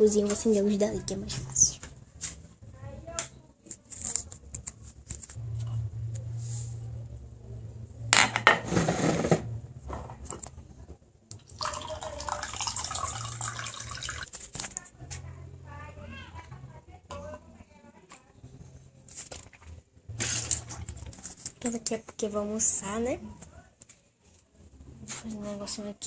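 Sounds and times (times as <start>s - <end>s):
low steady hum: 0.0s - 26.0s
dishes clinking: 8.2s - 10.5s
running water: 11.4s - 14.6s.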